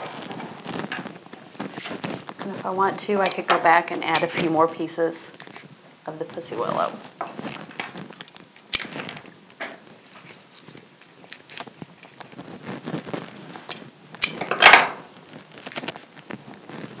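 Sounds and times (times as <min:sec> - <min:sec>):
twig scraping: 0:00.0 - 0:03.5, 0:06.4 - 0:14.4, 0:15.1 - 0:17.0
twigs clicking: 0:10.7 - 0:14.5.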